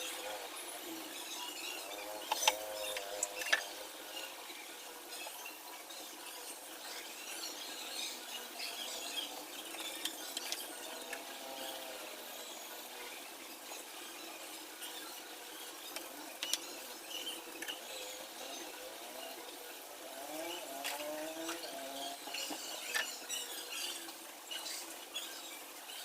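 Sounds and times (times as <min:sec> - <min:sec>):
small clicks and taps: 0:15.9 - 0:16.7.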